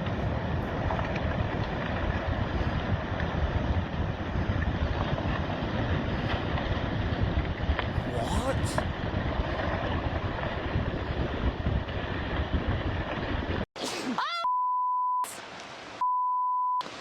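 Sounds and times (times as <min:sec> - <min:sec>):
loud wind: 0:00.0 - 0:13.6
person exclaiming: 0:08.0 - 0:08.8, 0:13.8 - 0:14.6
censor bleeps: 0:14.4 - 0:15.4, 0:16.0 - 0:16.8.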